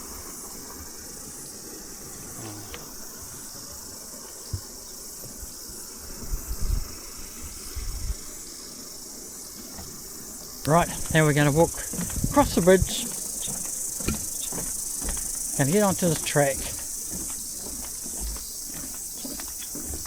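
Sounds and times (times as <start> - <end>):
cicadas singing: 0.0 - 20.0
creek rushing: 8.2 - 20.0
low bumps: 10.6 - 20.0.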